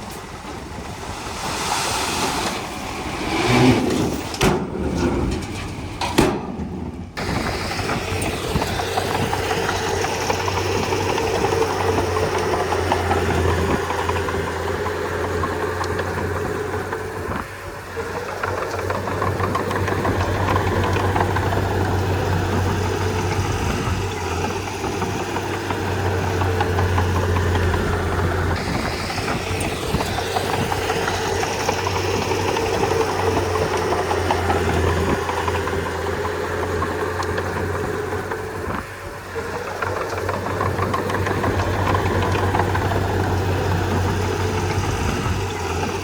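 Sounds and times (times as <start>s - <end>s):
bulldozer diesel engine running: 0.0s - 46.0s.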